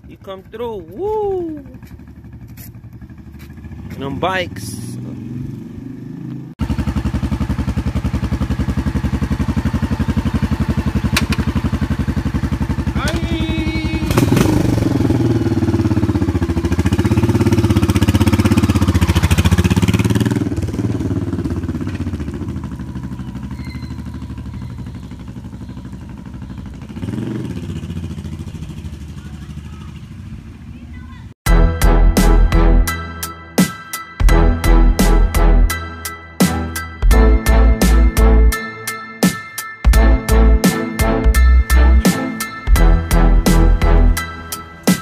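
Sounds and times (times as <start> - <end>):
motorcycle engines rumbling: 0.0 - 31.4.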